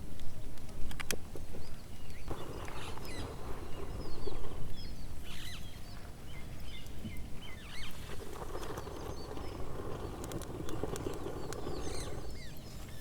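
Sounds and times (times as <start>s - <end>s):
small birds chirping: 0.2s - 13.0s
rustling noise: 2.3s - 13.0s.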